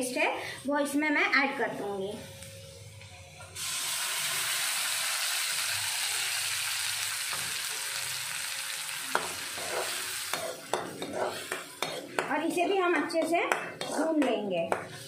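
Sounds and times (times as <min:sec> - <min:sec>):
paste sizzling in hot oil: 0:03.6 - 0:13.1
metal spoon scraping in pan: 0:09.1 - 0:15.0.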